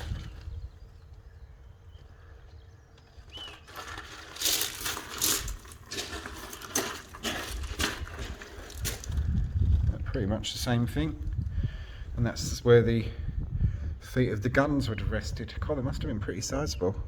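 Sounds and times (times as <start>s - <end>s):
bird chirp: 0.0s - 4.4s
low wind rumble: 0.0s - 17.0s
footsteps crunching on loose ground: 2.0s - 11.6s.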